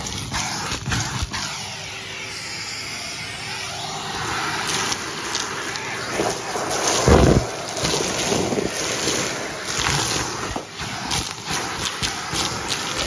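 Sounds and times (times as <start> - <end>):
vacuum cleaner running: 0.0 - 13.0
debris rattling through hose: 4.1 - 13.0.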